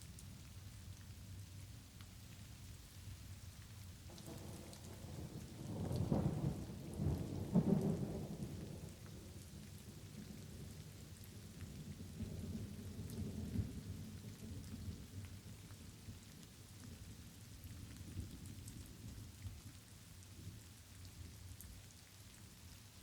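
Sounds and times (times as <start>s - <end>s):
light rain patter: 0.0s - 23.0s
thunder rumble: 4.1s - 9.0s.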